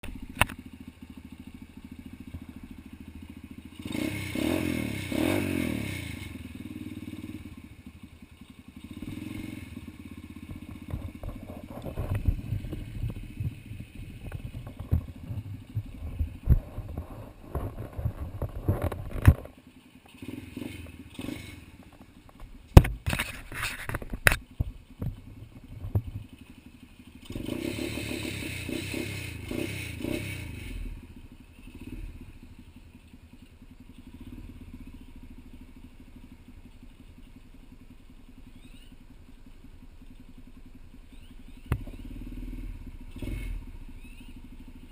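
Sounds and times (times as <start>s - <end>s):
pit bike engine revving: 1.0s - 19.4s, 20.0s - 22.0s, 25.6s - 36.0s, 40.6s - 44.9s.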